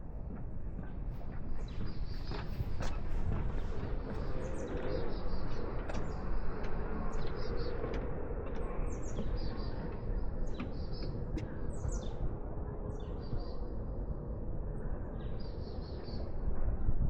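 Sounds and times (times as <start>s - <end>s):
small birds chirping: 1.6s - 14.0s.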